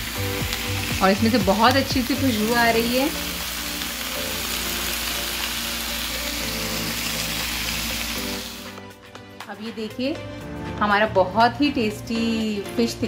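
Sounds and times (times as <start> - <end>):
fish sizzling in oil on grill pan: 0.0 - 8.9.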